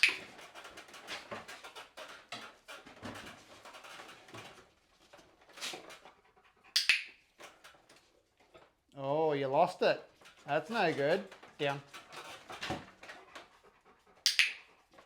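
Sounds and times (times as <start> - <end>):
dog panting: 5.2 - 6.8, 10.0 - 15.0.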